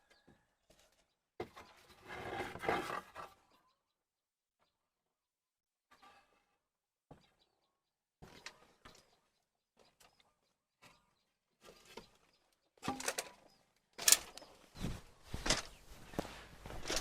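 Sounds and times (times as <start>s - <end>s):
rustling and scraping: 0.7s - 3.5s, 10.9s - 17.0s.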